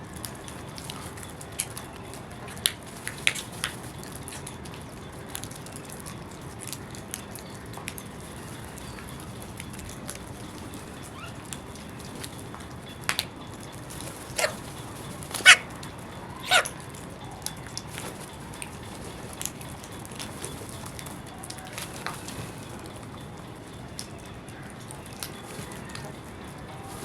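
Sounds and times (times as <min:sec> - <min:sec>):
crows cawing: 0:14.3 - 0:14.7, 0:15.3 - 0:15.8, 0:16.4 - 0:16.9.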